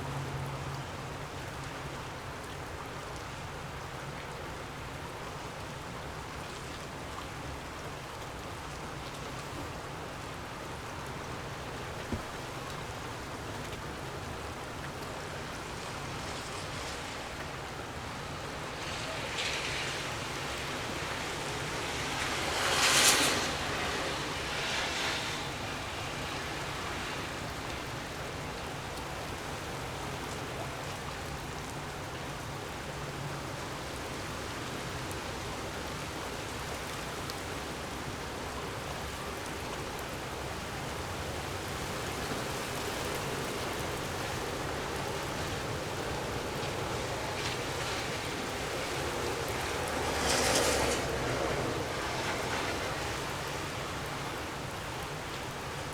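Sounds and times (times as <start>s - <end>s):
gusty wind: 12.1s - 30.3s, 33.3s - 55.9s.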